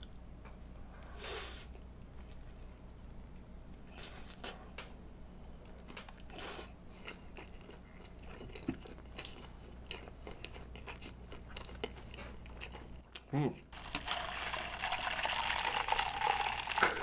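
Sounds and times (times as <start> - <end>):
low steady hum: 0.0 - 17.0
mouth chewing food: 6.0 - 14.4.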